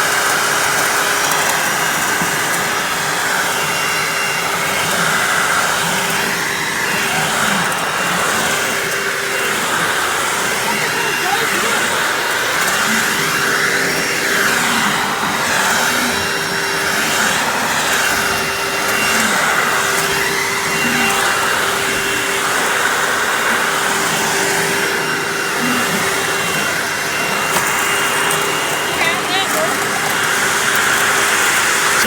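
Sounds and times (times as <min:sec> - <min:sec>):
upright vacuum cleaner running: 0:00.0 - 0:32.0.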